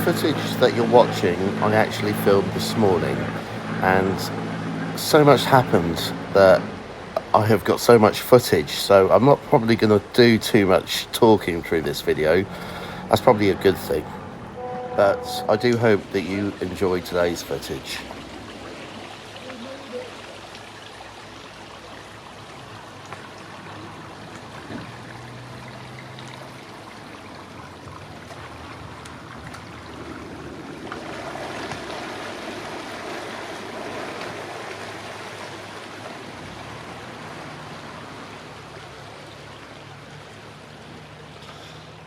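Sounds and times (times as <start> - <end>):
rushing noise: 0.0 - 18.1
boat engines running: 0.0 - 42.0.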